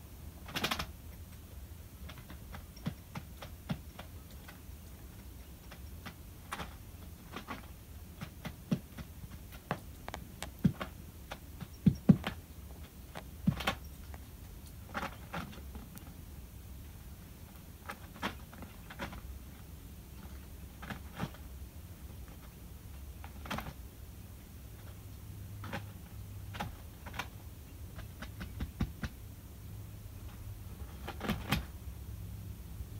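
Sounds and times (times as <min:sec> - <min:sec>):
bird scratching paper bedding: 0:30.7 - 0:31.7.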